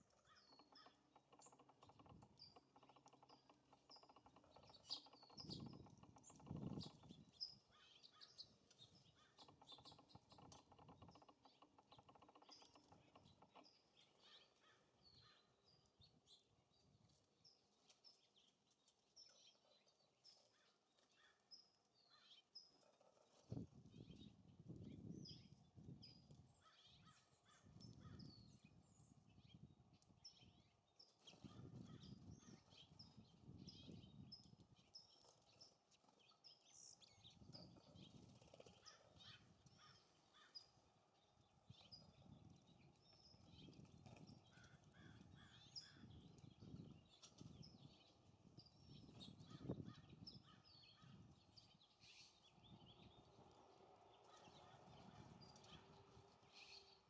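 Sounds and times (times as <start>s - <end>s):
small songbirds chirping: 0.0s - 57.0s
wind rumbling on microphone: 4.8s - 7.7s, 23.5s - 26.6s, 27.6s - 34.9s, 37.1s - 39.9s, 41.6s - 51.8s, 52.4s - 53.5s, 54.6s - 56.4s.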